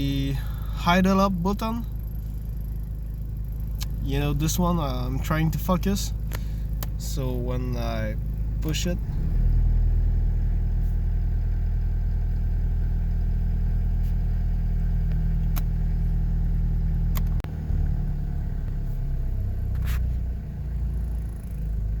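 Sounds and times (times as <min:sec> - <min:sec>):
engine idling: 0:00.0 - 0:22.0
sharp clicks: 0:06.2 - 0:07.0, 0:15.4 - 0:15.8, 0:17.1 - 0:17.4.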